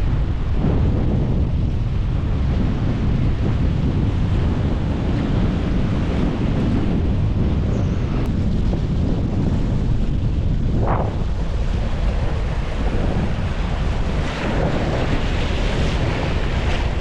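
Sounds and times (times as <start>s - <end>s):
wind buffeting microphone: 0.0s - 17.0s
waves washing in: 9.6s - 17.0s.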